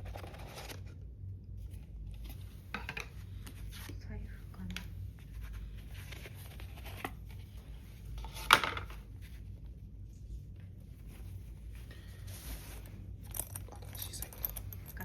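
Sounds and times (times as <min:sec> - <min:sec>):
dish set down on table: 0:08.4 - 0:08.9.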